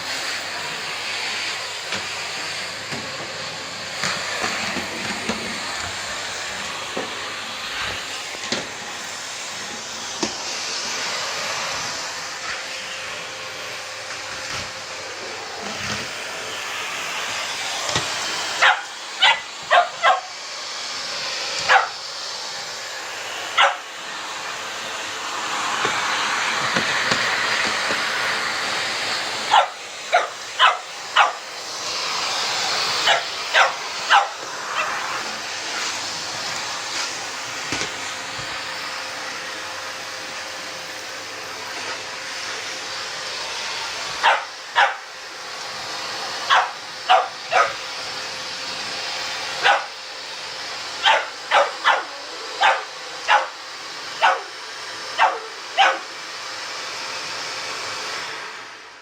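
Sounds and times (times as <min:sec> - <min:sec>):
vacuum cleaner running: 0:00.0 - 0:59.0
dog barking: 0:18.6 - 0:20.3, 0:21.7 - 0:22.0, 0:23.5 - 0:23.9, 0:29.5 - 0:31.4, 0:33.0 - 0:34.9, 0:44.2 - 0:45.0, 0:46.5 - 0:47.8, 0:49.6 - 0:50.0, 0:51.0 - 0:53.6, 0:54.2 - 0:54.5, 0:55.2 - 0:56.0.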